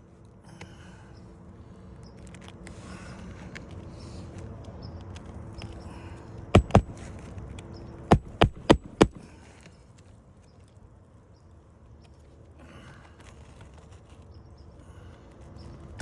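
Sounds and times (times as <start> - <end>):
hammer striking roof shingles: 6.6 - 7.3, 8.1 - 9.4.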